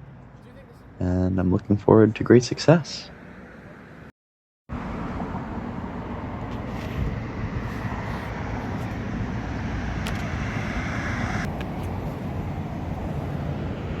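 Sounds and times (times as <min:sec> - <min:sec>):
outdoor rumble and hiss: 0:04.7 - 0:14.0
high hiss: 0:07.4 - 0:11.6.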